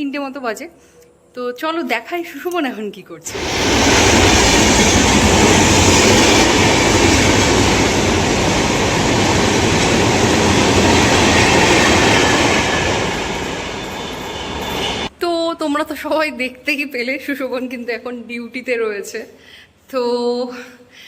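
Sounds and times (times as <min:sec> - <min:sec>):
train rumbling on rails: 0:03.3 - 0:15.1.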